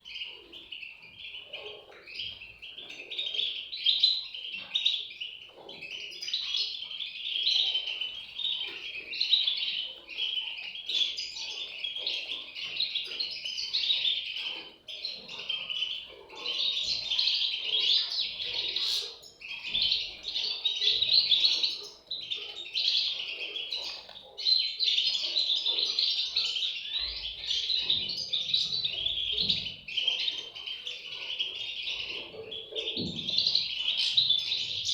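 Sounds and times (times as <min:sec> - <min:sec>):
bird chicks chirping: 0:00.0 - 0:34.9.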